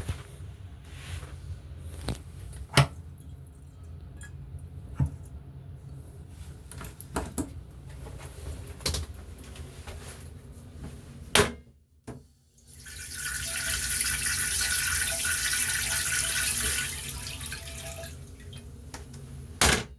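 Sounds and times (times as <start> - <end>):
water running from faucet: 12.6 - 18.7.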